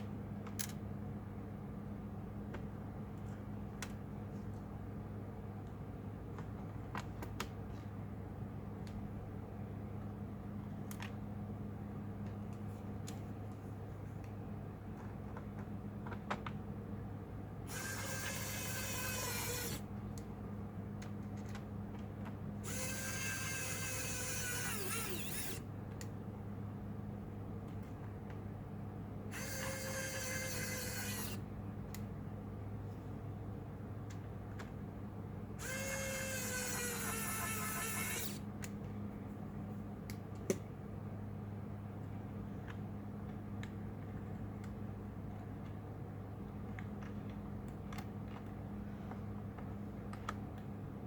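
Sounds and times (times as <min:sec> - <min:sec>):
electric screwdriver whirring: 0:17.7 - 0:19.8, 0:22.6 - 0:25.6, 0:29.3 - 0:31.4, 0:35.6 - 0:38.4
light clicks of small parts: 0:46.6 - 0:50.8.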